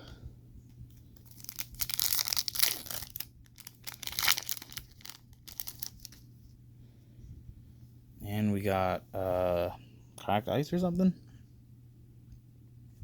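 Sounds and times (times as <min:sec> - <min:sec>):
foil wrapper tearing and crinkling: 0:01.2 - 0:06.2.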